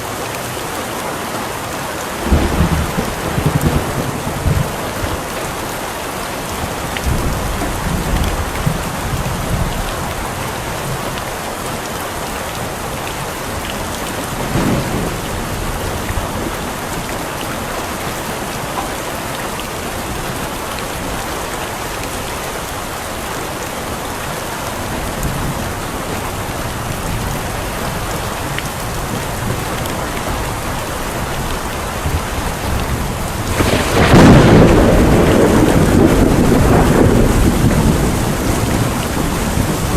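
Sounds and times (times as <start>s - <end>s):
heavy rain: 0.0s - 39.9s
thunder rumbling: 2.2s - 5.3s, 13.4s - 19.1s, 24.8s - 39.9s.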